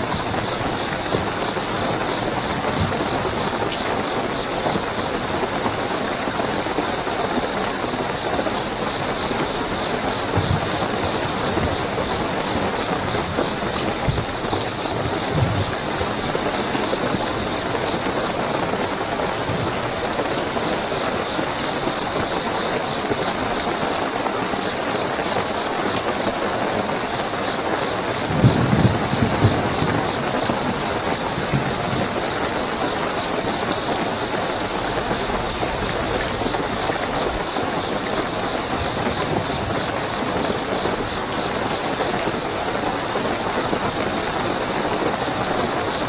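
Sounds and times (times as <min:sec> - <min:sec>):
crickets trilling: 0:00.0 - 0:46.0
heavy rainfall: 0:00.0 - 0:46.0
faint low thuds: 0:10.3 - 0:17.2.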